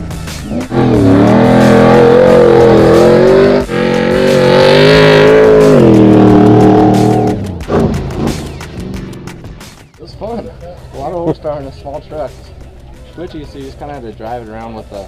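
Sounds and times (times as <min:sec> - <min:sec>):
truck engine running hard: 0:00.0 - 0:09.1.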